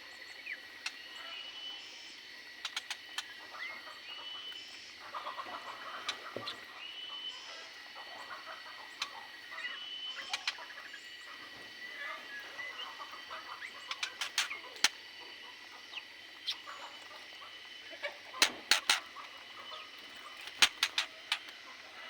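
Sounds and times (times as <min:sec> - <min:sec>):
birds giving sharp calls: 0:12.0 - 0:22.0.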